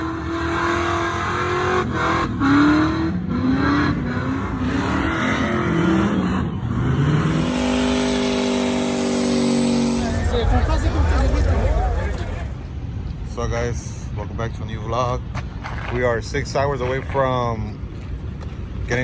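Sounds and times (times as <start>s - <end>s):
truck engine revving: 0.0s - 12.5s.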